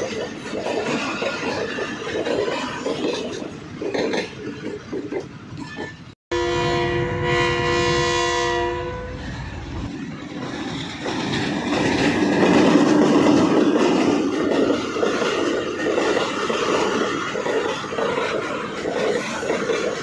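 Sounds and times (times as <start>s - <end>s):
train running on rails: 0.0s - 20.0s
train horn blast: 6.3s - 9.4s.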